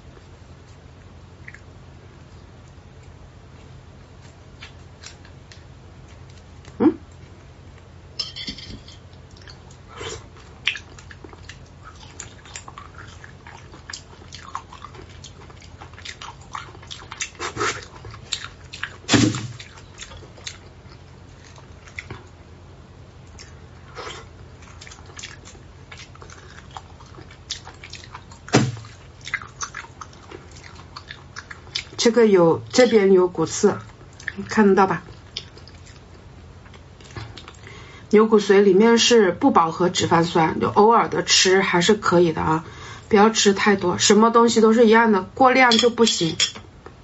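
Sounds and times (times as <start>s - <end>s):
chewing and wet mouth sounds: 0.2s - 7.9s, 9.1s - 22.4s, 23.2s - 32.1s, 33.7s - 37.7s.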